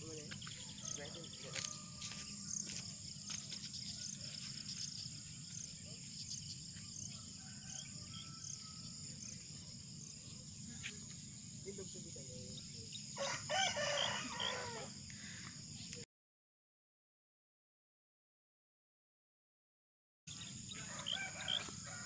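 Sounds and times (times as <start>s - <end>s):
high buzz of insects: 0.0s - 16.0s, 20.3s - 22.0s
rooster crowing: 0.6s - 2.4s, 7.0s - 9.2s, 13.2s - 15.0s, 20.7s - 22.0s.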